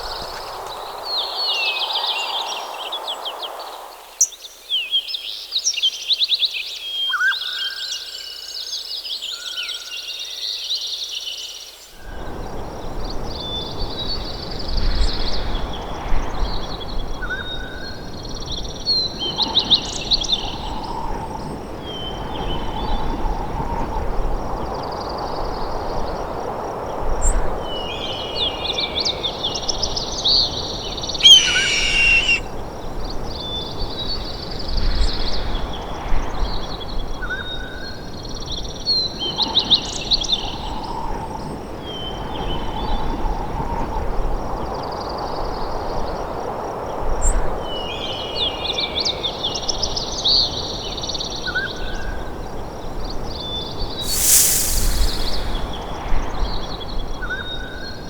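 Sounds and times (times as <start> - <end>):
birds chirping and singing: 31.2 - 32.4
steady rushing noise: 54.0 - 56.0.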